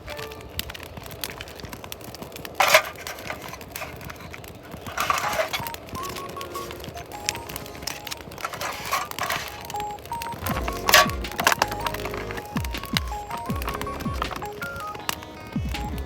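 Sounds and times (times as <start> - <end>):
scraping rustles: 2.5 - 14.8
small clicks and clinks: 2.5 - 16.0.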